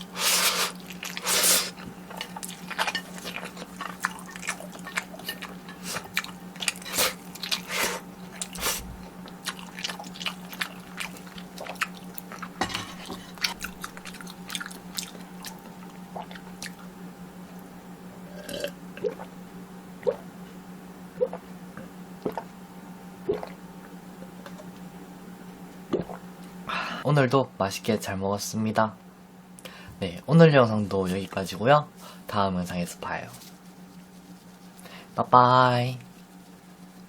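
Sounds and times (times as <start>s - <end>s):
biting and chewing food: 0.0s - 16.9s.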